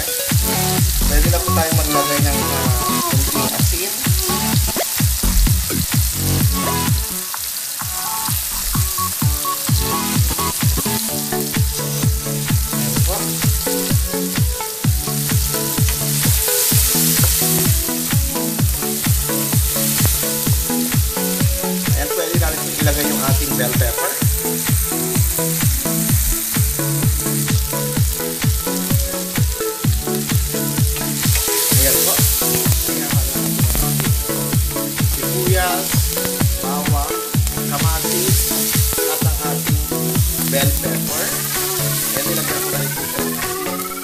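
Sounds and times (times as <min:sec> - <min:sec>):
background music with beat: 0:00.0 - 0:44.0
vegetables sizzling in oil: 0:00.0 - 0:44.0
wooden spatula stirring: 0:09.8 - 0:44.0.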